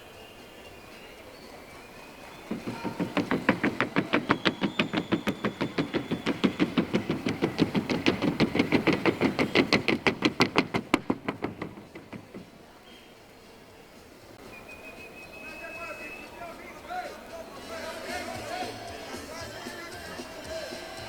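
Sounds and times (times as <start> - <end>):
hooves on wooden board: 2.4 - 12.7.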